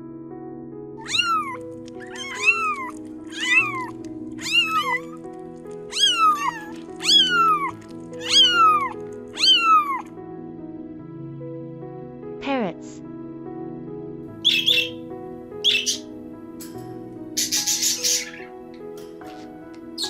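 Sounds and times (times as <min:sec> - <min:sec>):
cat meowing: 0:01.0 - 0:10.1.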